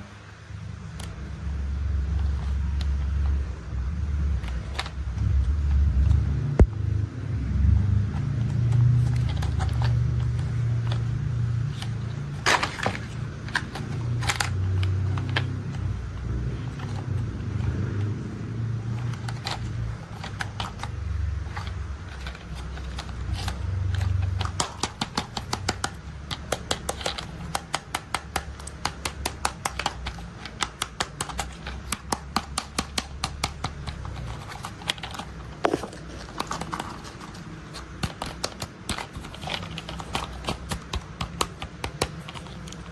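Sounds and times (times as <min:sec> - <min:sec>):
sharp plastic clicks: 0:18.8 - 0:42.9.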